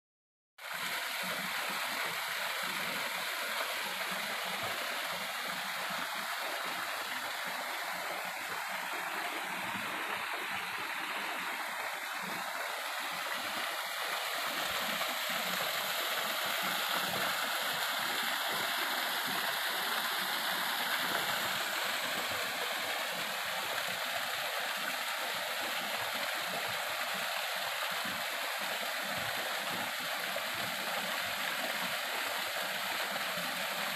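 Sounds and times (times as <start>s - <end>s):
waterfall rushing: 1.6s - 27.8s.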